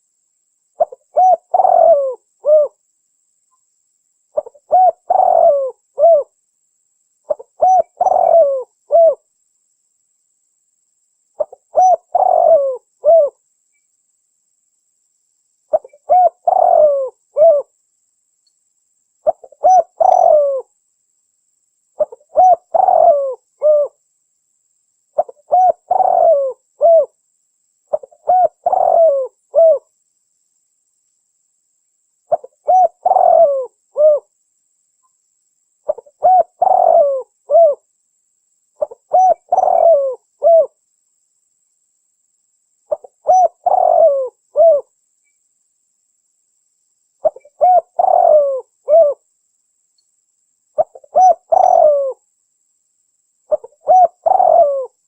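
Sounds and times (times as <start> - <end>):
dove cooing: 0.8 - 2.8, 4.4 - 6.3, 7.3 - 9.2, 11.4 - 13.4, 15.7 - 17.7, 19.2 - 20.7, 22.0 - 24.0, 25.2 - 27.2, 27.9 - 29.9, 32.3 - 34.3, 35.9 - 37.8, 38.8 - 40.8, 42.9 - 44.9, 47.2 - 49.2, 50.8 - 52.2, 53.5 - 55.0.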